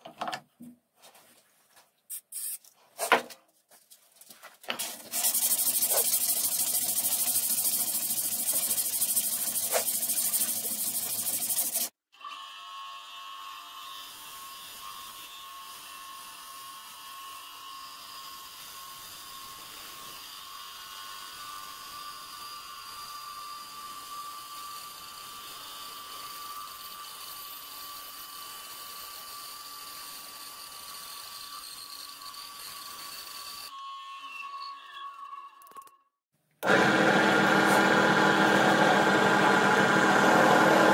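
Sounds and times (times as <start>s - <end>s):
power tool motor whirring: 36.6s - 40.9s.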